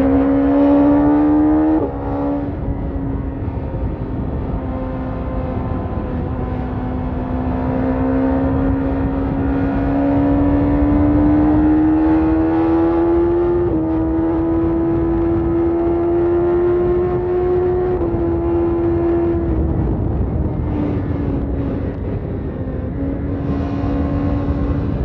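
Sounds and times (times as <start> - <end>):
motorcycle engine revving: 0.0 - 25.0
low rumbling noise: 12.9 - 25.0.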